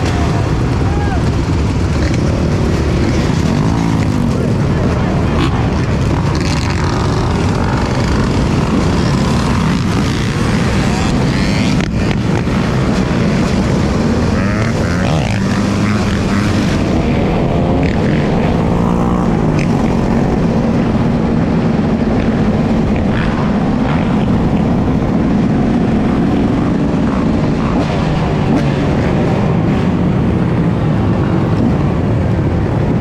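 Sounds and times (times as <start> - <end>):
dirt bike engine revving: 0.0 - 30.9
wind and road noise: 0.0 - 33.0.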